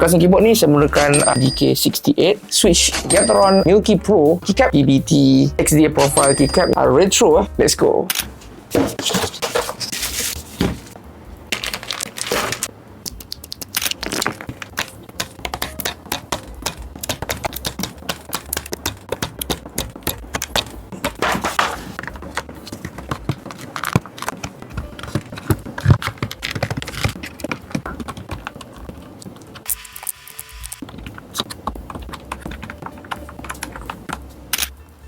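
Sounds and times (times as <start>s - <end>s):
short plastic scrapes: 8.7s - 11.0s.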